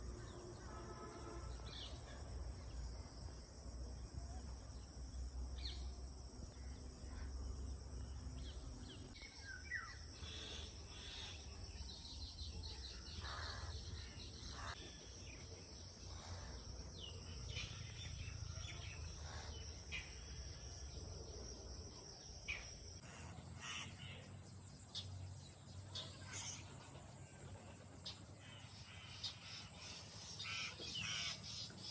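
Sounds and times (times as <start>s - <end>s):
insects trilling: 4.7s - 31.9s
crows cawing: 13.2s - 13.8s.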